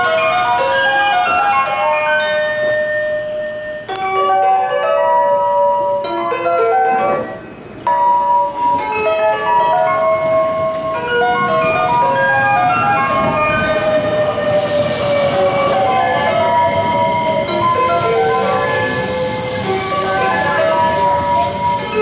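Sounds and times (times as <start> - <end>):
electronic chime melody over speakers: 0.0 - 14.0
approaching train rumble: 9.8 - 22.0.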